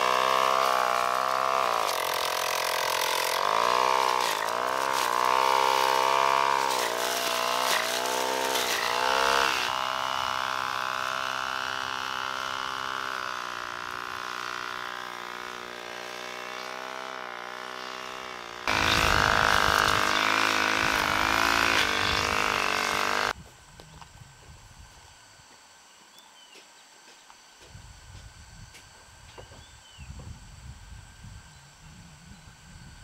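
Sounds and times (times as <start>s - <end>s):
small motor running: 0.0s - 23.4s.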